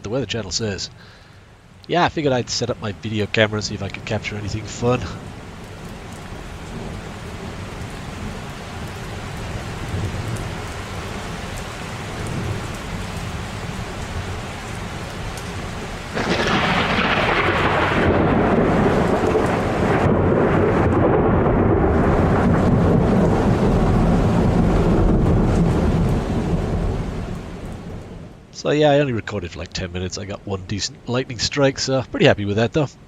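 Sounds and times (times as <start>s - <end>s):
steady rain: 0.0s - 33.0s
thunder rumbling: 2.0s - 11.5s, 15.7s - 33.0s
loud thunder crack: 16.2s - 27.2s.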